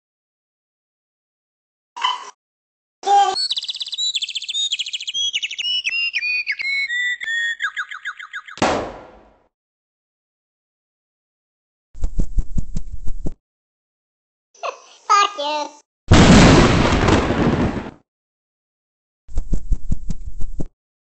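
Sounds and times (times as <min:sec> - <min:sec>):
small bird trilling song: 0:03.2 - 0:08.6.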